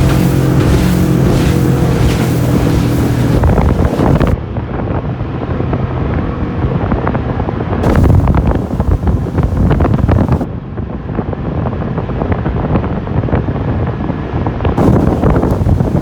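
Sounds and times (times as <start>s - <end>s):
motorboat engine: 0.0s - 4.4s, 7.8s - 10.4s, 14.8s - 16.0s
water rushing past hull: 0.0s - 4.4s, 7.8s - 10.5s, 14.8s - 16.0s
wind buffeting microphone: 0.0s - 4.8s, 6.8s - 10.5s, 11.2s - 16.0s.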